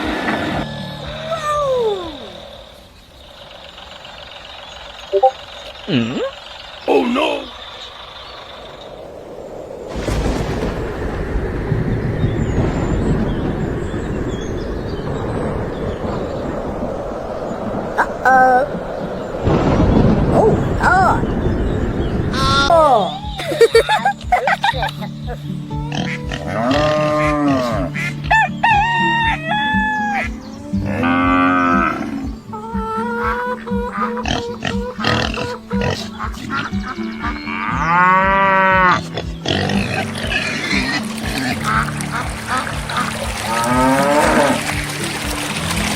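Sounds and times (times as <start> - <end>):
steady low rumble: 7.6 - 22.7
rooster crowing: 28.3 - 30.2
cow mooing: 43.5 - 44.7.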